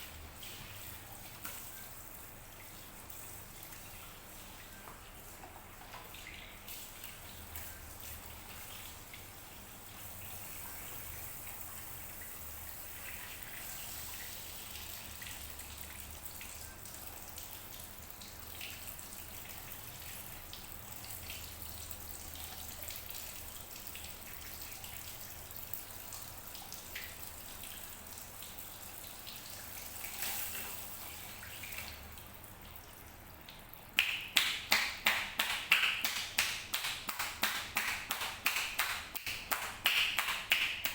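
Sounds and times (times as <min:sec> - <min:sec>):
water drips: 0:00.0 - 0:40.9
running water hiss: 0:10.0 - 0:15.6
rapid hand slaps: 0:34.0 - 0:40.9.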